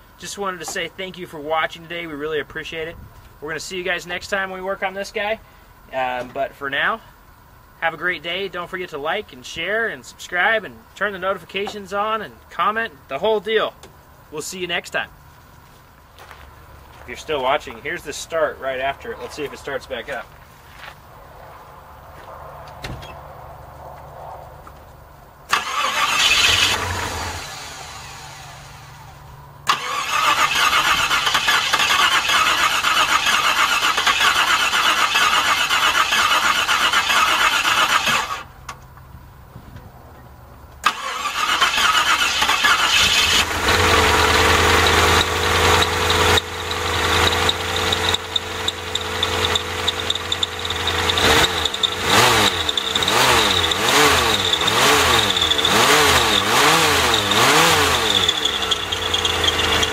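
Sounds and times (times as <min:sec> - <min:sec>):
engine running: 0:15.2 - 0:39.4, 0:40.2 - 0:59.9
engine starter cranking: 0:25.5 - 0:28.9, 0:29.6 - 0:38.5, 0:40.8 - 0:59.9.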